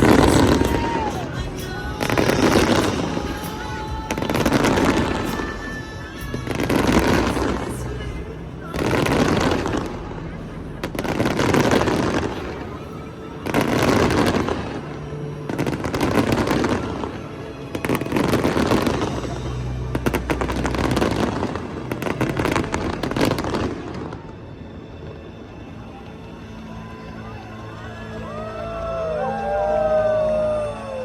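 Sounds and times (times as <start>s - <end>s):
fireworks booming and crackling: 0.0s - 24.4s.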